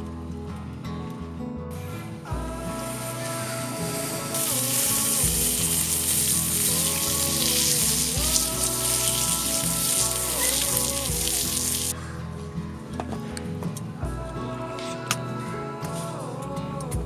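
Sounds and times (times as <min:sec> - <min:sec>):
background music: 0:00.0 - 0:17.0
food sizzling in a hot pan: 0:02.8 - 0:11.9.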